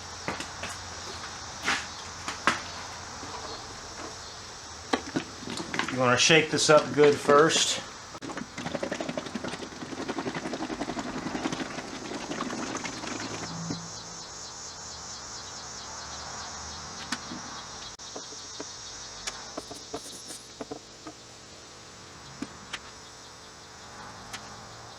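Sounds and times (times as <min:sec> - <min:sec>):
liquid sloshing in shaken bottle: 0:05.0 - 0:13.6
high-pitched insect buzz: 0:13.2 - 0:24.9.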